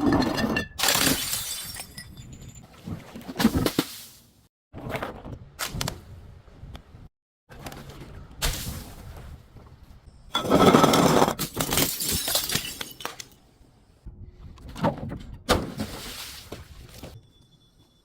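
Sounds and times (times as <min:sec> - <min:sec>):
glass bottles smashing: 0:00.0 - 0:02.6, 0:10.4 - 0:13.3.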